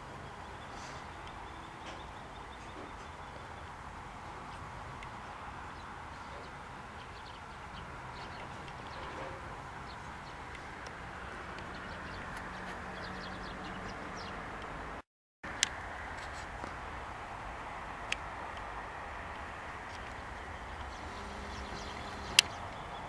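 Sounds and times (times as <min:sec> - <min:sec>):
steady background hum: 0:15.7 - 0:23.0.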